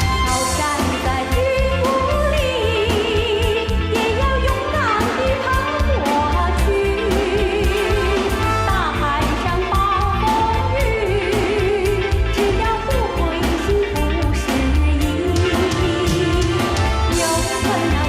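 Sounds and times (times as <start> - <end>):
person singing with vibrato: 0.0 - 18.0
pop backing track with bass: 0.0 - 18.0.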